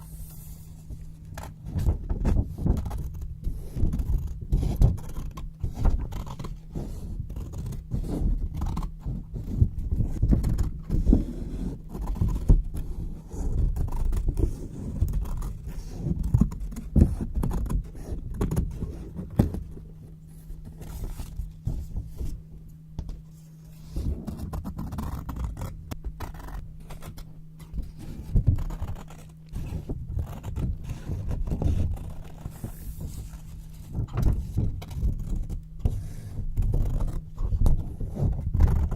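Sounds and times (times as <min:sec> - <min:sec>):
faint low hum: 0:00.0 - 0:38.9
scissors cutting paper: 0:02.6 - 0:19.6, 0:24.0 - 0:32.9.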